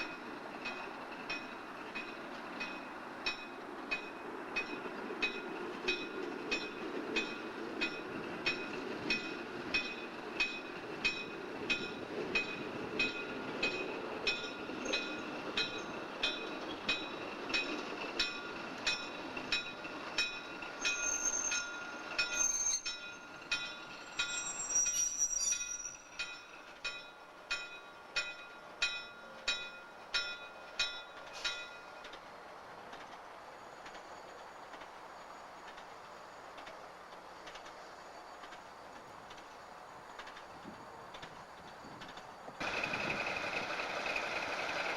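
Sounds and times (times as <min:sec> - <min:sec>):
locomotive bell ringing: 0:00.0 - 0:32.0
train low rumble: 0:00.0 - 0:44.9
wheels squealing on rails: 0:00.0 - 0:44.9.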